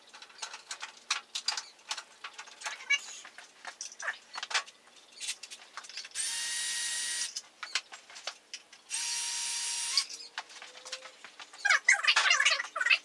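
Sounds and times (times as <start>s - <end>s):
cordless drill running: 6.2s - 7.4s, 8.9s - 10.1s.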